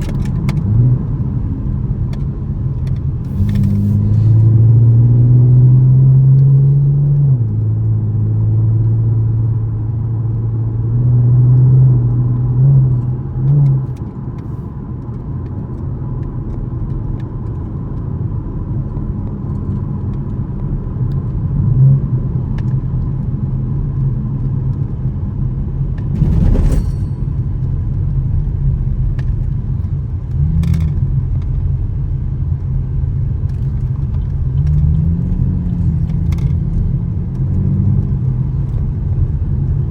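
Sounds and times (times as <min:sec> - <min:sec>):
car engine droning under load: 0:00.0 - 0:08.3, 0:25.7 - 0:39.9
road noise: 0:00.0 - 0:39.9
brief rushing sound: 0:26.1 - 0:27.7.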